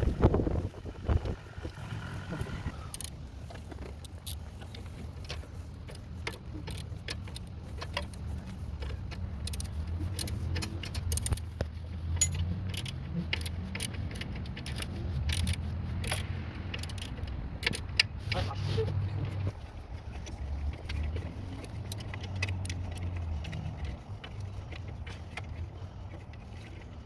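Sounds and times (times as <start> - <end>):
steady low rumble: 0.0 - 4.6
wrench clicking on bolt: 12.2 - 18.2.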